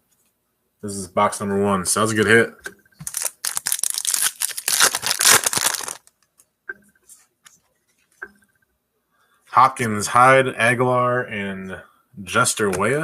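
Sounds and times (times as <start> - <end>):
foil pack tearing and crinkling: 3.1 - 6.1.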